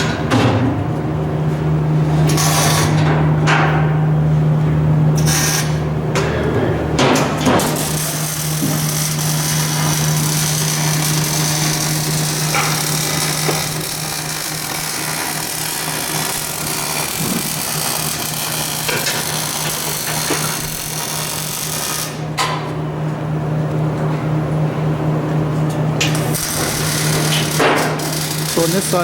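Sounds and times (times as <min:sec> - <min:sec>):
power tool running: 0:07.5 - 0:22.3, 0:26.0 - 0:29.0.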